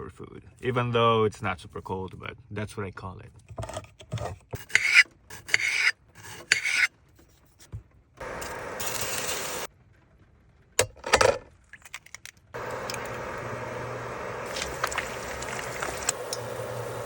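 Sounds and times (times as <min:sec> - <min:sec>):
utensil scraping cookware: 0:03.8 - 0:06.9
steady cooking hiss: 0:08.2 - 0:09.7, 0:12.6 - 0:17.0.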